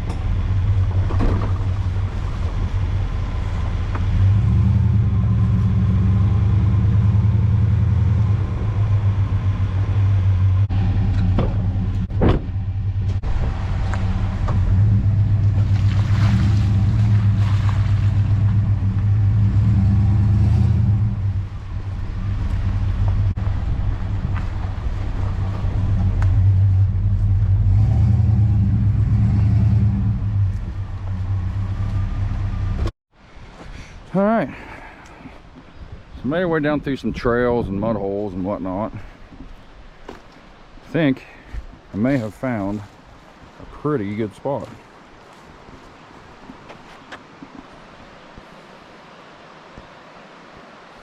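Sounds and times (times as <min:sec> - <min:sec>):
engine and road drone: 0:00.0 - 0:33.0
knocks and rattles: 0:11.0 - 0:14.8.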